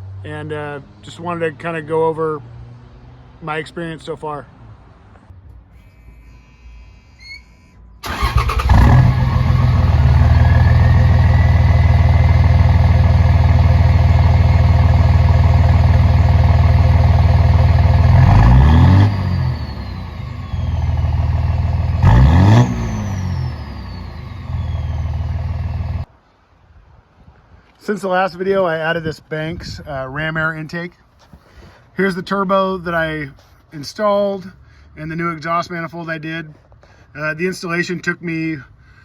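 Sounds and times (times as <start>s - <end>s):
turbo whistling: 5.8s - 11.9s, 17.0s - 25.4s
diesel engine running under load: 8.0s - 26.1s.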